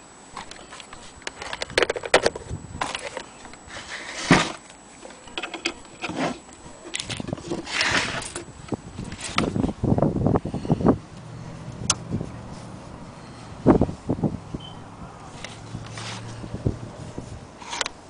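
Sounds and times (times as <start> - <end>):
rustling: 11.3 - 14.2, 15.3 - 18.0.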